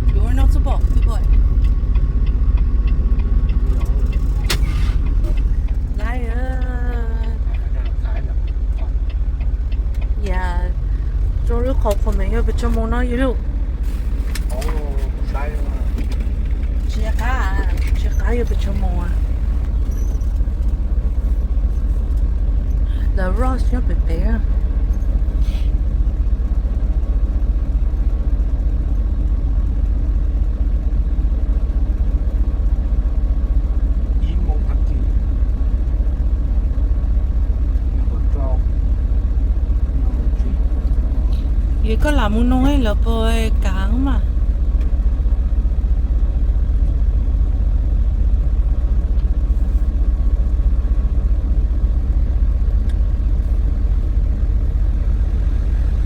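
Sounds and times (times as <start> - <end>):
road noise: 0.0 - 56.0
truck engine rumbling: 0.0 - 56.0.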